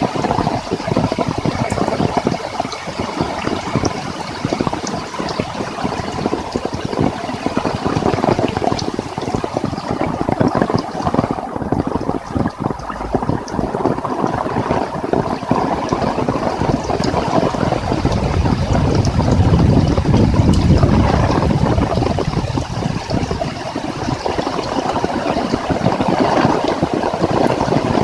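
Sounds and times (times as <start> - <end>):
heavy rain in wind: 0.0 - 28.0
low rumble: 11.3 - 15.3, 16.0 - 23.4.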